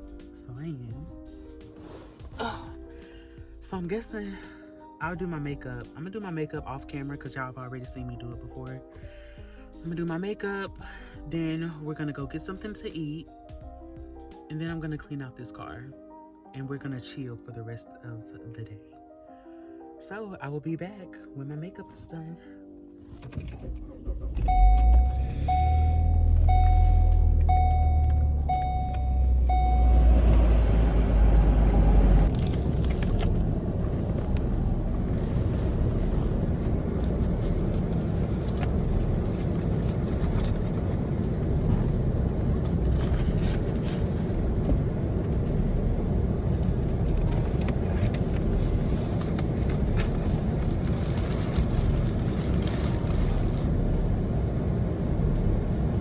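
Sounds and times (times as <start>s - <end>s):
car engine starting and running: 0.0s - 15.2s, 22.6s - 56.0s
warning chime beeping: 24.4s - 31.0s.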